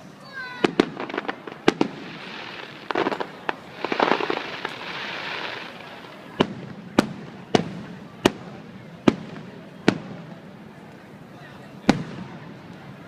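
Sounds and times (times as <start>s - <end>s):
small firework pops: 0.6s - 11.1s, 11.9s - 13.0s
firework shells bursting: 0.7s - 7.7s.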